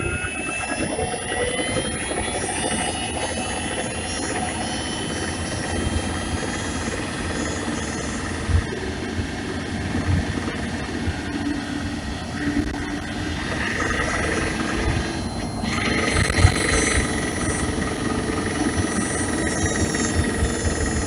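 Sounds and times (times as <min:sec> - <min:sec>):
high whine: 0:00.0 - 0:21.0.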